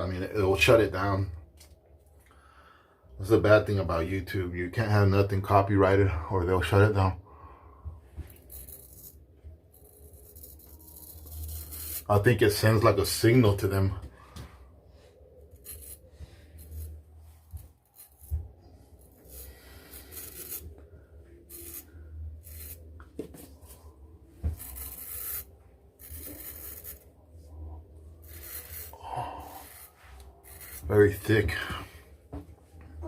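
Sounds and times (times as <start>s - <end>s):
shaving brush rasping lather: 9.9s - 12.3s, 19.0s - 20.7s, 21.5s - 22.8s, 24.5s - 27.0s, 28.2s - 31.5s.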